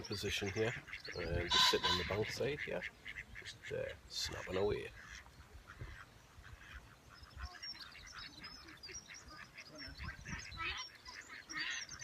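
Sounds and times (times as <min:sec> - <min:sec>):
birds chattering: 0:00.0 - 0:12.0
high bird chirps: 0:01.4 - 0:02.2.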